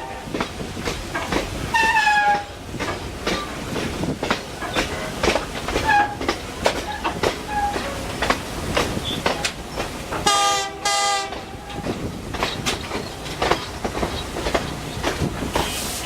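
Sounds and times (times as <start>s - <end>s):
train low rumble: 0.0s - 16.0s
clicks over rail joints: 0.3s - 10.4s, 11.2s - 15.7s
locomotive horn blasts: 10.2s - 11.9s.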